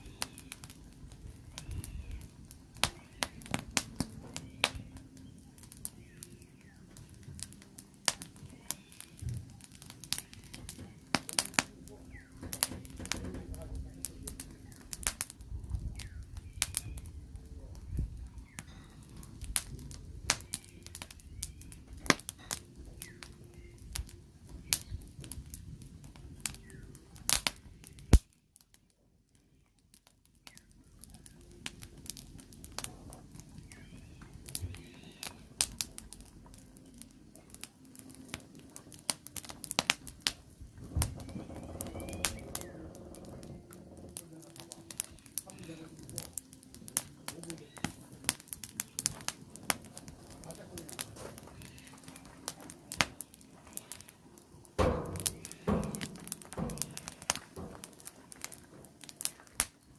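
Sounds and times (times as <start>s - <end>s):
firewood crackling and popping: 0.0s - 59.9s
low fire rumble: 0.0s - 59.9s.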